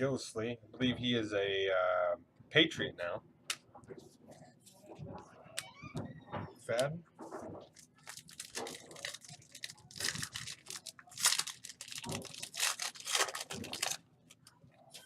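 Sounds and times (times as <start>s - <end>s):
foil wrapper crinkling: 7.7s - 15.0s.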